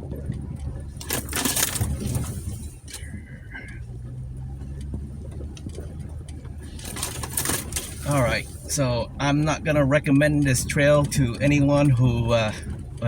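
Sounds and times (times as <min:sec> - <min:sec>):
car engine idling: 0:00.0 - 0:13.0
branches scraping car body: 0:01.0 - 0:03.1, 0:06.7 - 0:08.8.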